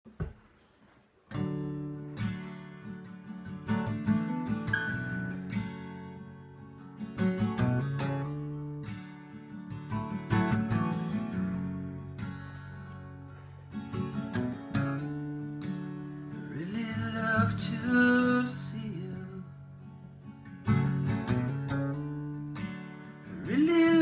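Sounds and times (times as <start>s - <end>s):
acoustic guitar strumming chords: 1.3s - 24.0s.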